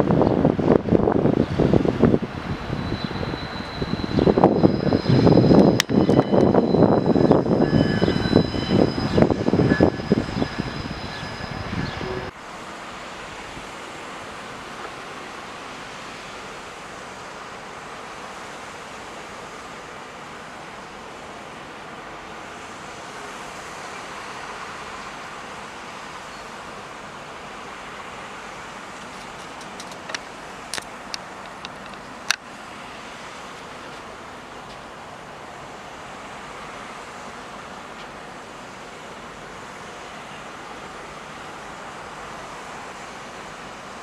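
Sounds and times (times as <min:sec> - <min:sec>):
distant traffic: 0:00.0 - 0:44.0
passing vehicle rumble and whine: 0:00.0 - 0:44.0
wind: 0:00.0 - 0:44.0.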